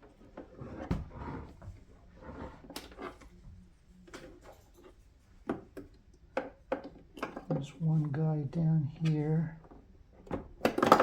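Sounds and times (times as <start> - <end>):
plastic parts clicking and knocking: 5.5 - 7.7, 9.0 - 11.0.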